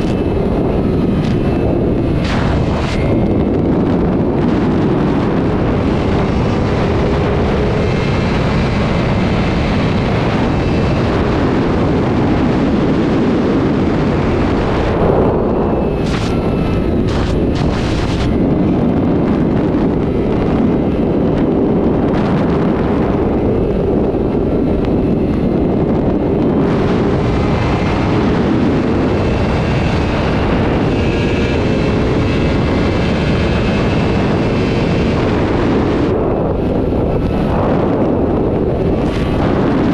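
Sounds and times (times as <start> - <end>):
motorcycle engines at speed: 0.0 - 39.9
wind rush on microphone: 0.0 - 39.9
sharp cracks: 2.1 - 3.4, 16.0 - 18.3.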